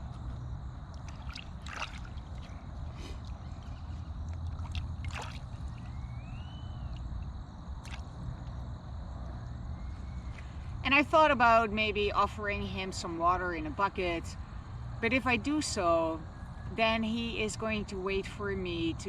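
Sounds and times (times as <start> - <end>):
water sloshing and splashing: 0.0 - 8.5.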